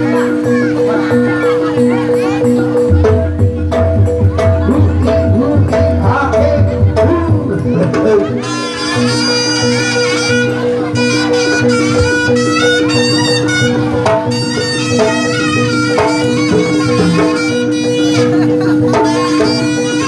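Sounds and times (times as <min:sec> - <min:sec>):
light regular percussion: 0:00.0 - 0:20.0
reedy shawm melody: 0:00.0 - 0:20.0.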